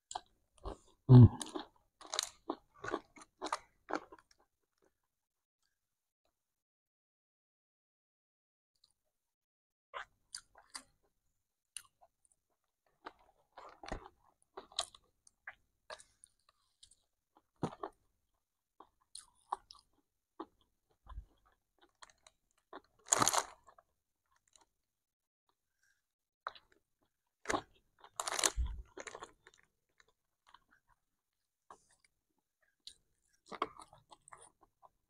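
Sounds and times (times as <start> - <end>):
person chewing: 0.1 - 4.9, 18.8 - 23.8, 26.5 - 31.0.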